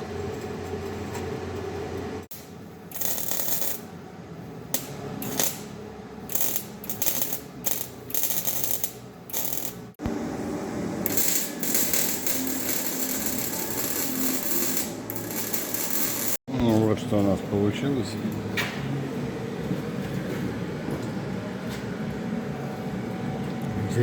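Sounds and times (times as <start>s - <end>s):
hissing workshop noise: 2.3s - 24.0s
ratchet wrench clicking: 2.9s - 3.8s, 6.3s - 9.8s, 11.1s - 16.4s.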